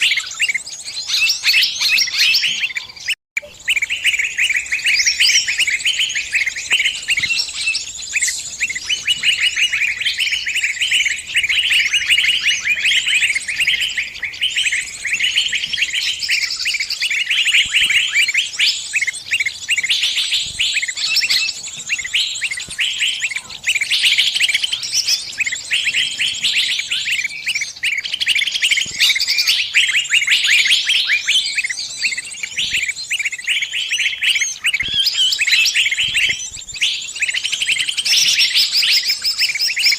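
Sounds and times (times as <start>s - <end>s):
songbird distress chirps: 0.0s - 39.9s.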